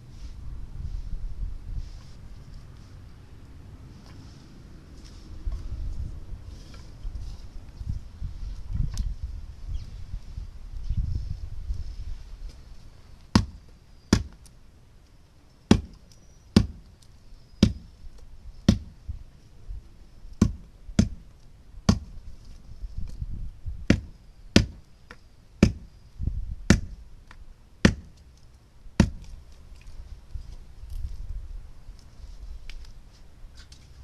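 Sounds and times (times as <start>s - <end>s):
sharp chopping strikes: 13.3s - 14.4s, 15.7s - 16.0s, 16.6s - 16.8s, 17.6s - 17.9s, 18.7s - 18.9s, 20.4s - 21.2s, 21.9s - 22.2s, 23.9s - 24.8s, 25.6s - 25.9s, 26.7s - 27.0s, 27.8s - 28.2s, 29.0s - 29.3s.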